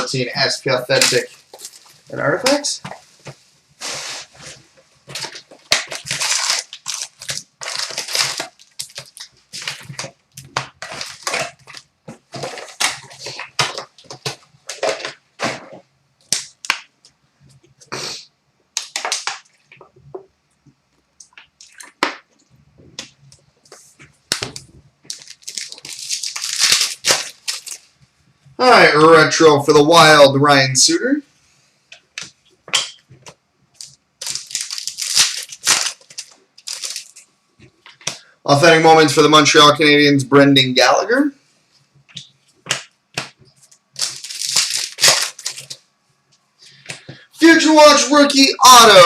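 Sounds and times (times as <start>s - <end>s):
packaging crinkling and ripping: 0.9s - 3.0s, 3.8s - 15.6s, 18.8s - 19.9s, 24.3s - 27.9s, 33.8s - 37.3s, 43.6s - 45.9s.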